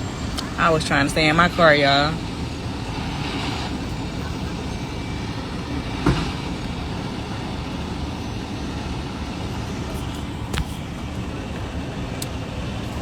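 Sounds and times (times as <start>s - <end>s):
heavy vehicle engines idling: 0.0s - 13.0s.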